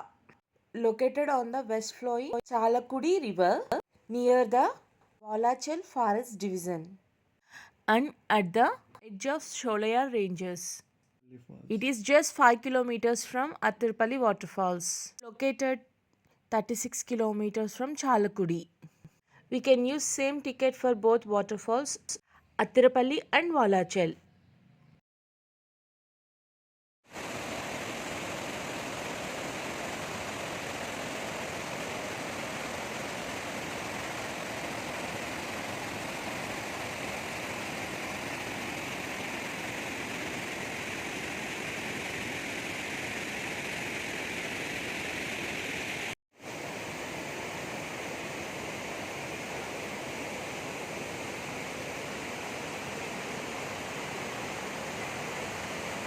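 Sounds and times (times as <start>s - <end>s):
waterfall roaring: 27.2s - 56.0s.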